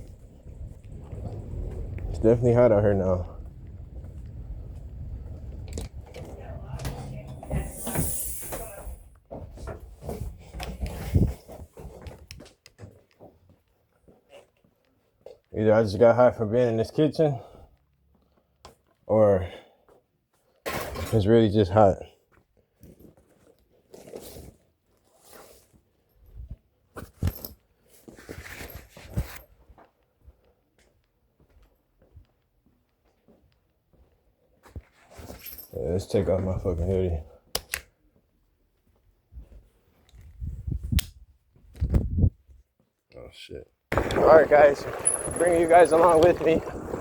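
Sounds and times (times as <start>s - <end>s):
rustling and scraping handling: 22.7s - 29.9s.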